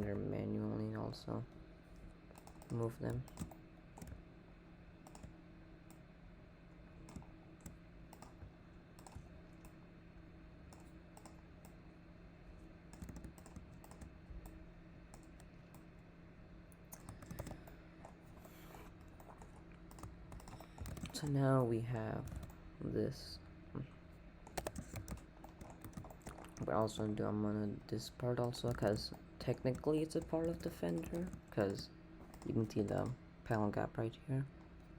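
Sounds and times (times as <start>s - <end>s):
steady low hum: 0.0s - 34.9s
keyboard and mouse clicks: 2.3s - 4.2s, 5.0s - 6.0s, 7.0s - 9.8s, 10.7s - 11.8s, 12.9s - 15.9s, 16.8s - 21.4s, 22.2s - 22.6s, 24.5s - 26.9s, 28.4s - 33.2s.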